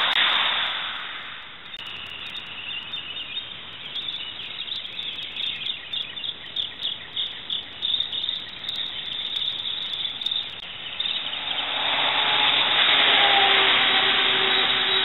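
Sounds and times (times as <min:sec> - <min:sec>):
birds chirping: 0:00.0 - 0:12.9, 0:14.0 - 0:15.0
passing motor vehicle engine: 0:11.2 - 0:15.0.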